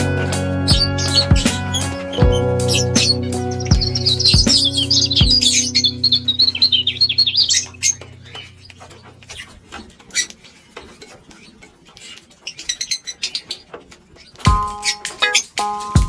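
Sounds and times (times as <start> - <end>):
birds chirping high-pitched: 0.6 - 10.3.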